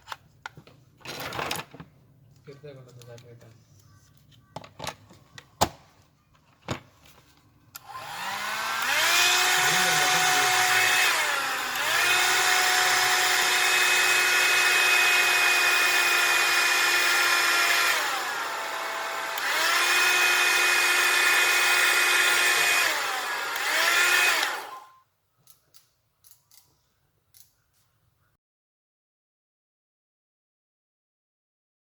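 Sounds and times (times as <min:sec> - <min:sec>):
hair dryer motor whine: 0:07.8 - 0:25.0.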